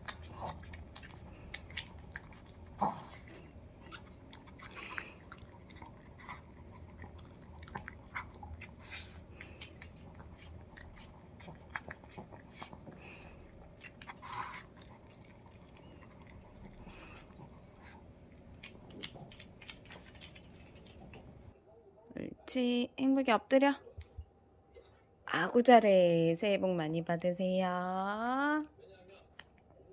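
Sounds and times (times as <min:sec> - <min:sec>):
dog chewing and biting: 0:00.0 - 0:21.5.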